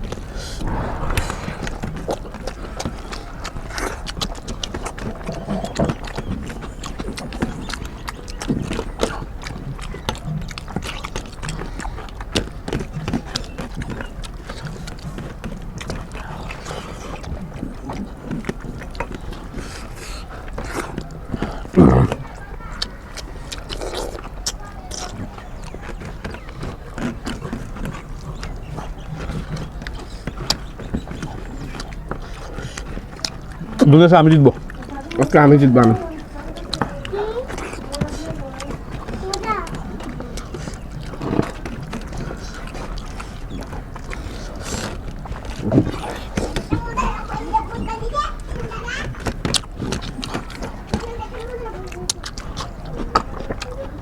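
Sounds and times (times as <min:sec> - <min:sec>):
people chewing with wet smacks: 0:00.0 - 0:01.1, 0:01.9 - 0:54.0
low mouth noises: 0:00.0 - 0:22.5, 0:36.0 - 0:46.8.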